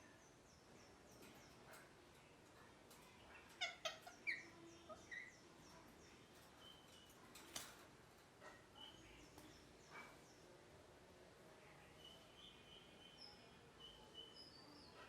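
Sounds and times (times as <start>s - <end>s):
parakeet harsh calls: 3.6s - 5.0s.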